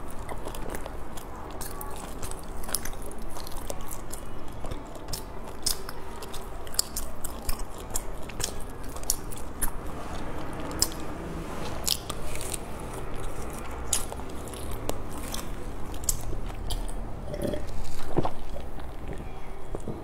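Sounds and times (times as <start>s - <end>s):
chewing sticky rice cake: 0.0s - 20.0s
wet mouth clicks: 10.6s - 11.2s
gulping a drink: 16.1s - 18.7s.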